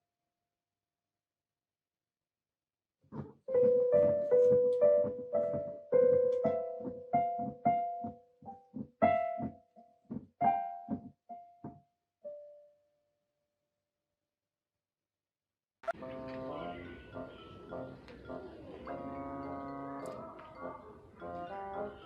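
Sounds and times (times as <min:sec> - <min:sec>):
piano notes ringing: 0:03.5 - 0:11.6, 0:15.8 - 0:22.0.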